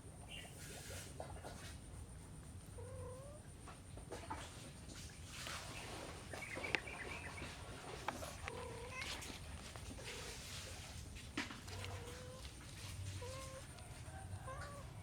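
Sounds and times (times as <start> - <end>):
small clicks and rustling: 4.1 - 15.0
kitten mewing: 11.6 - 15.0.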